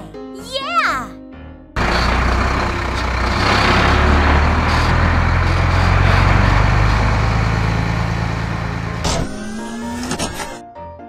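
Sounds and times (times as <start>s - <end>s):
heavy truck engines rumbling: 1.8s - 10.6s.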